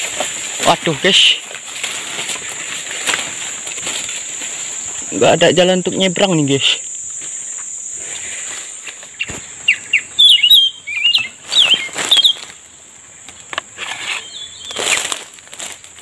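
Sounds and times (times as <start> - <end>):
songbird chirping: 0.0 - 15.3
high insect drone: 0.0 - 16.0.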